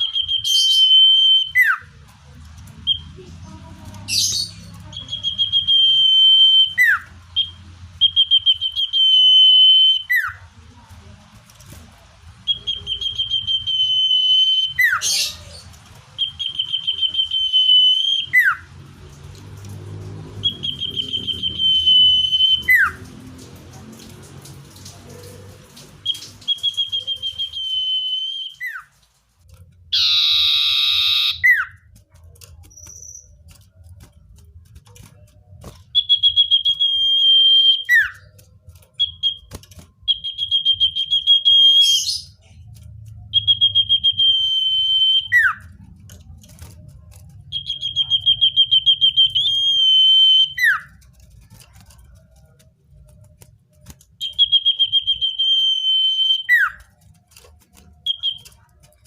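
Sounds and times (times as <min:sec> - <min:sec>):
bird singing whistled phrases: 0:00.0 - 0:01.9, 0:04.2 - 0:10.4, 0:12.5 - 0:18.7, 0:20.4 - 0:23.0, 0:26.0 - 0:28.9, 0:30.0 - 0:31.8, 0:35.9 - 0:38.3, 0:39.0 - 0:42.4, 0:43.3 - 0:45.8, 0:47.5 - 0:50.9, 0:54.1 - 0:56.9, 0:58.0 - 0:58.6.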